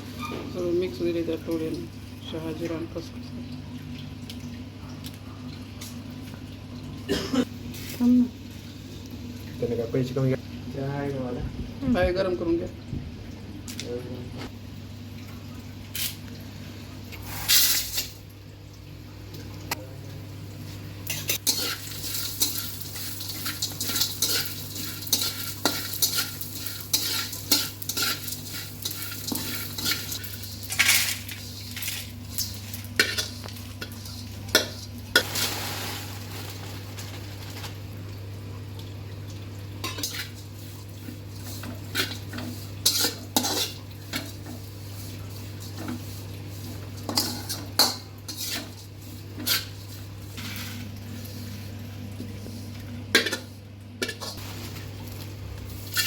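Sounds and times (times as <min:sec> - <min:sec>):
spatula scraping a pan: 0:21.1 - 0:30.8, 0:41.4 - 0:50.9.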